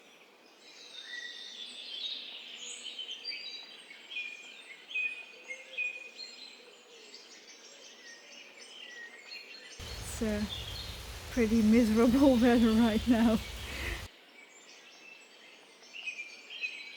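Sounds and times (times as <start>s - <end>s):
songbird chorus: 9.3s - 14.1s.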